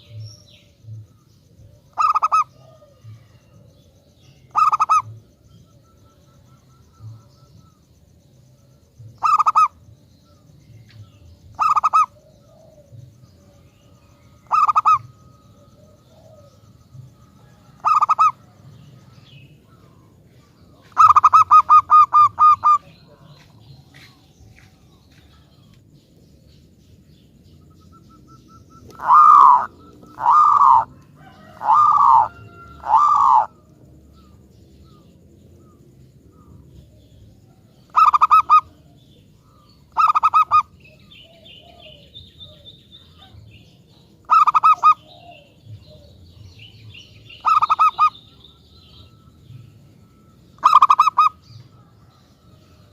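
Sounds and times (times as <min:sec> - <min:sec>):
dove cooing: 0:00.0 - 0:07.8, 0:09.1 - 0:09.8, 0:11.4 - 0:24.0, 0:27.7 - 0:52.9.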